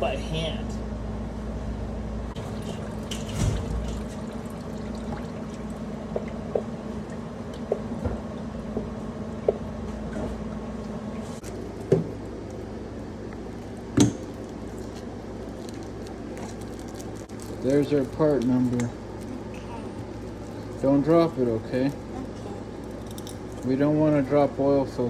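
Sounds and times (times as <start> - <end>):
oil trickling and dripping: 2.5 - 7.8, 11.4 - 19.4.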